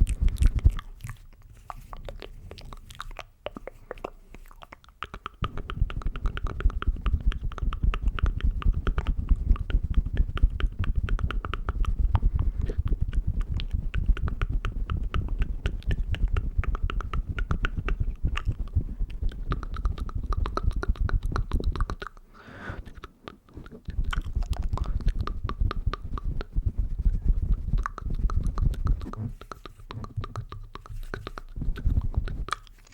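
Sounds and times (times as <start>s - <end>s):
wet mouth clicks and smacks: 0.0s - 32.9s
breath: 22.3s - 22.9s.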